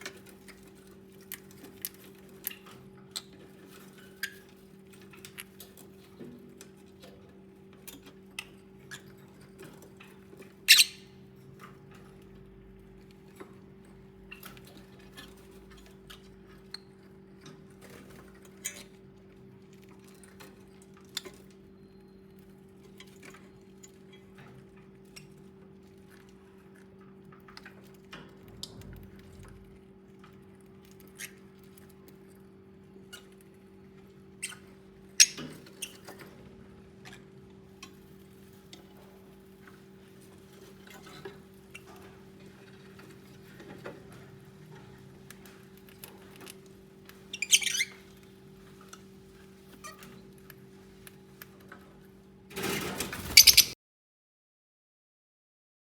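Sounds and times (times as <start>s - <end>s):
lovebirds chirping and squeaking: 10.7s - 11.2s, 34.4s - 36.1s, 47.1s - 48.2s, 53.2s - 53.8s.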